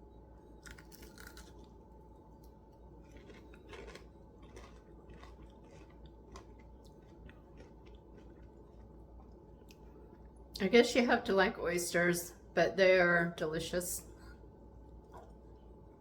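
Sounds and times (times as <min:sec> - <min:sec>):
person chewing crunchy food: 0:00.4 - 0:10.5.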